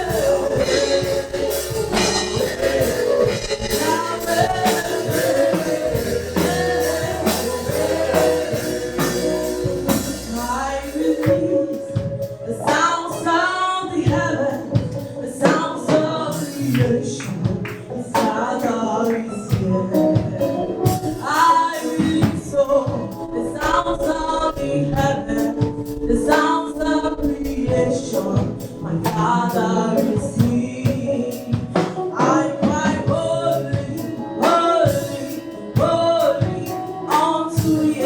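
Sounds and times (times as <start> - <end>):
low bass: 0.0 - 11.4
band with percussion beat: 0.0 - 13.3, 14.0 - 38.0
choir singing: 0.0 - 38.0.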